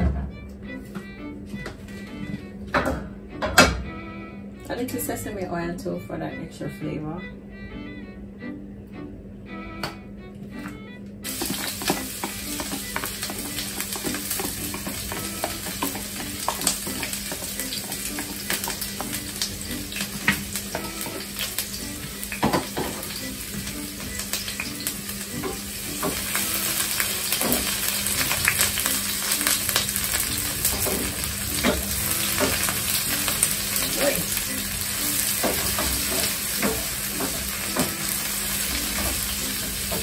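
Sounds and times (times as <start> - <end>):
peppers sizzling in oil: 11.2 - 40.0.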